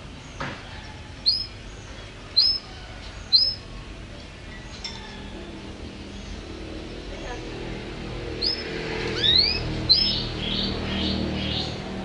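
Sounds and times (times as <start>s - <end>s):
faint bird calls: 0.6s - 3.7s
songbird high calls: 1.2s - 3.7s, 8.4s - 11.8s.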